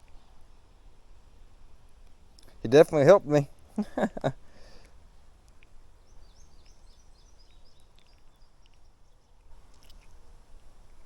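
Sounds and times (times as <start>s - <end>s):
faint clicks: 4.8s - 5.8s, 6.6s - 11.0s
small bird singing: 6.0s - 9.4s.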